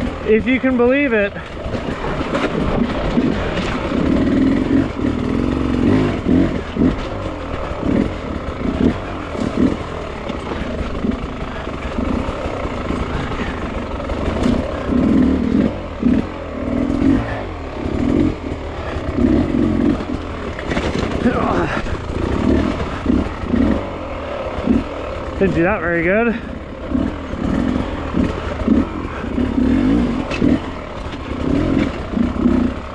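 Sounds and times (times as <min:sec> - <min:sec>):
dirt bike engine revving: 0:00.0 - 0:32.9
knocks and clatter on rock: 0:01.4 - 0:04.2, 0:05.9 - 0:14.9, 0:19.8 - 0:23.8.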